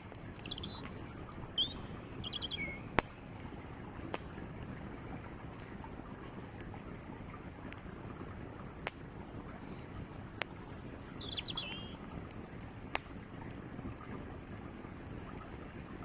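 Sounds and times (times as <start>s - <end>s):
bird twittering: 0.0s - 3.0s, 9.6s - 12.0s
campfire crackling and popping: 0.0s - 16.0s
creek water rushing: 0.0s - 16.0s.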